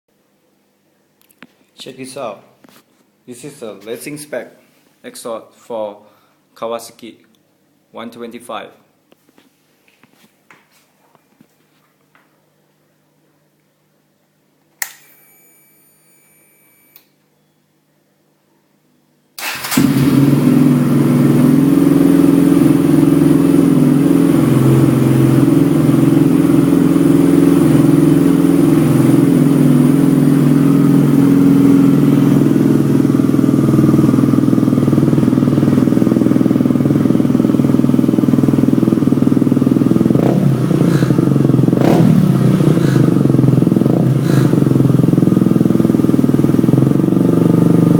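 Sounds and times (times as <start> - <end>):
click: 14.8 - 15.1, 16.9 - 17.2
faint brief whine: 14.9 - 17.9
motorcycle engine idling: 19.4 - 47.9.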